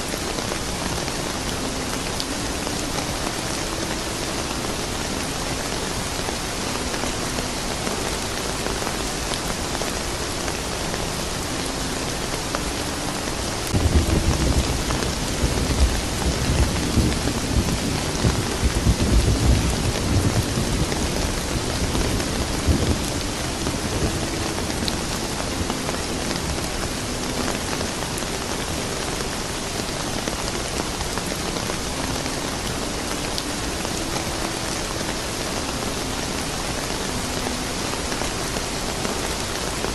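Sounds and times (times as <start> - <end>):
steady rain: 0.0 - 39.9
thunder rumbling: 13.7 - 26.9.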